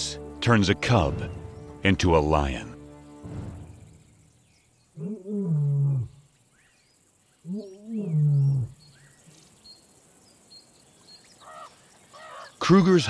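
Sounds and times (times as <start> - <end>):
faint bird chirps: 3.5 - 13.0
lion roaring: 5.0 - 6.2, 7.5 - 8.8.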